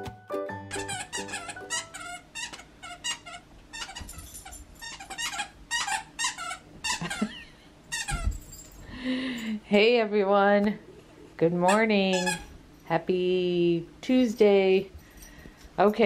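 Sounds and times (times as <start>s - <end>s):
dogs whining and yipping: 0.8s - 7.4s.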